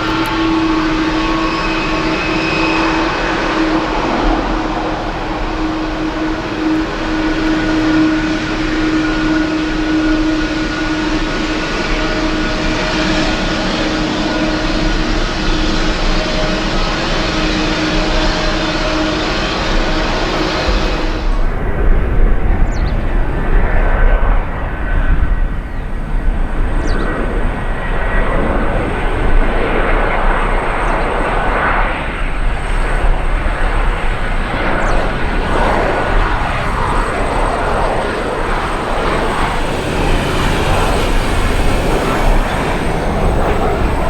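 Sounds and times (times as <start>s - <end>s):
jet engines rumbling: 0.0s - 44.0s
faint high whine: 30.1s - 44.0s.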